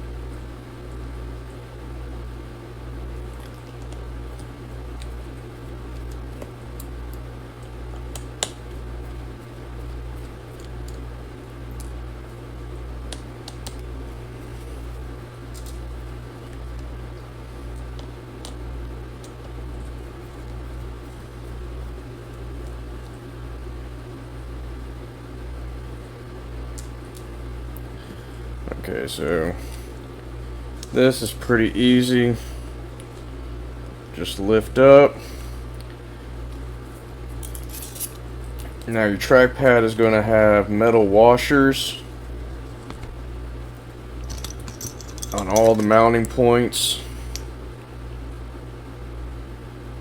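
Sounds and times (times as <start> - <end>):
small tools clicking: 44.2 - 46.0.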